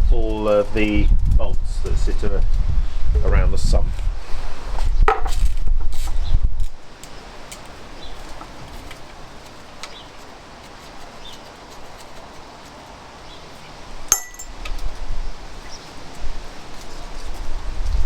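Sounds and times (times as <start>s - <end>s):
metal tool clinks: 14.1s - 14.6s
ringing metal clink: 14.1s - 14.6s.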